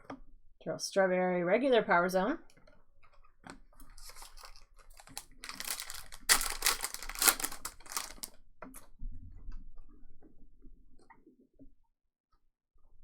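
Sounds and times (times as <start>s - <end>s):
foil wrapper crinkling and tearing: 3.8s - 8.3s
soft handling noise: 3.8s - 8.3s.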